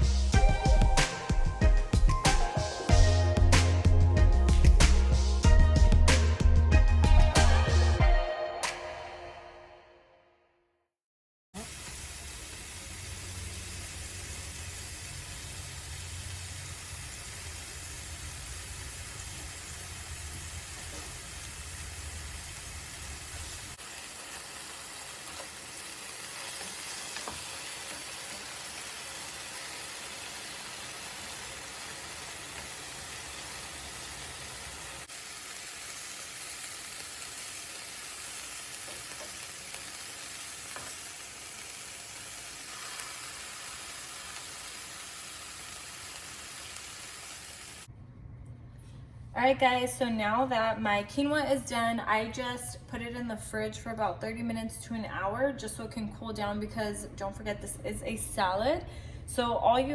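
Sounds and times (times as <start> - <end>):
food sizzling in a pan: 11.6 - 47.9.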